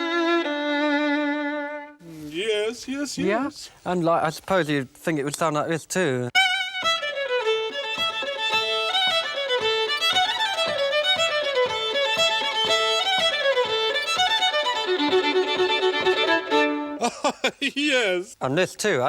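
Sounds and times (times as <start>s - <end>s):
solo violin melody: 0.0s - 2.0s, 6.3s - 17.0s.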